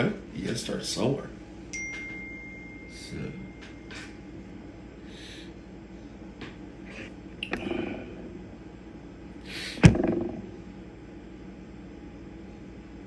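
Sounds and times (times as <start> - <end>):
sharp thump: 9.8 - 10.5.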